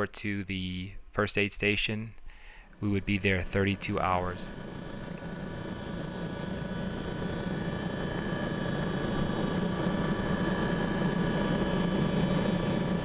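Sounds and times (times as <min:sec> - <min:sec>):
helicopter engine and rotor: 0:02.4 - 0:13.0.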